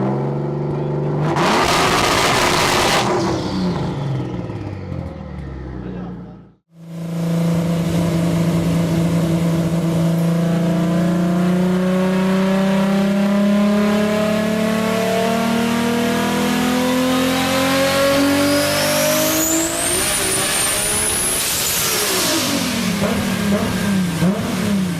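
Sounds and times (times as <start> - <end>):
car engine and exhaust revving: 0.0 - 24.9.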